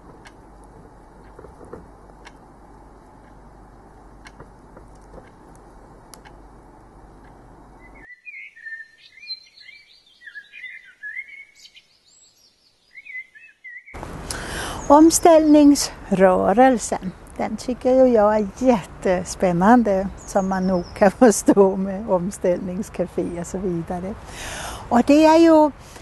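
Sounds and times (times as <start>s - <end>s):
steady low hiss: 0.0s - 8.1s, 14.0s - 26.0s
small bird chirping and twittering: 7.8s - 14.0s.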